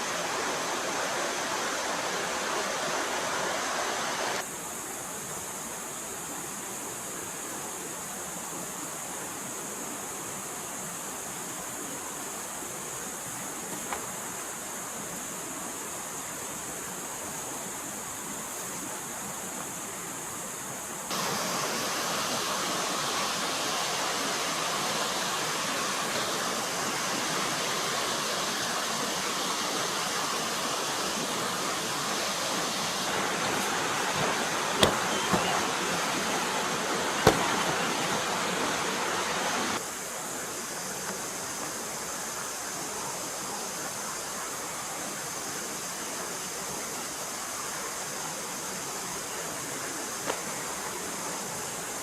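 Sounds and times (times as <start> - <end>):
stream flowing water: 0.0 - 52.0.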